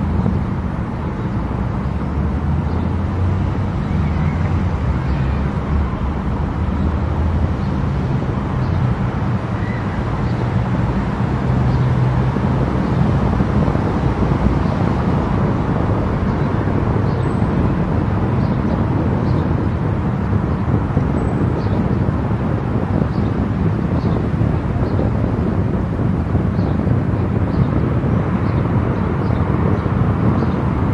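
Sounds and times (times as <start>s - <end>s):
car engine drone: 0.0s - 22.8s
tyres on road: 0.0s - 30.9s.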